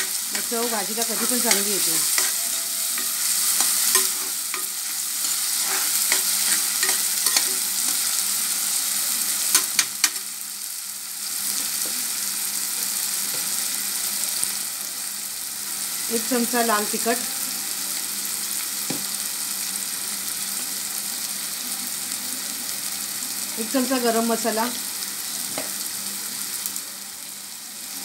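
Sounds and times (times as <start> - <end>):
steel spoon scraping pot: 0.0 - 7.6
onion and tomato sizzling in oil: 0.0 - 28.0.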